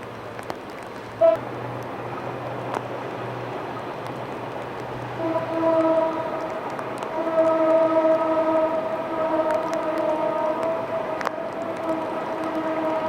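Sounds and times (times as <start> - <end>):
horn long blasts: 1.2 - 1.8, 5.0 - 13.0.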